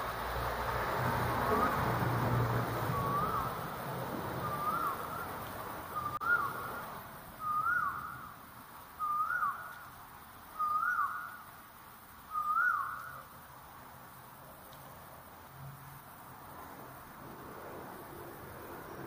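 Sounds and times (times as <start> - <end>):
bird calling rising note: 2.8 - 3.7, 4.3 - 8.3, 12.3 - 13.2.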